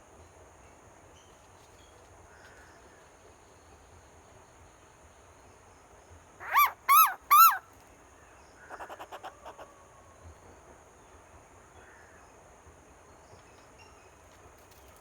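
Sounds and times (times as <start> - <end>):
bird calling loud rising notes: 6.4 - 7.6.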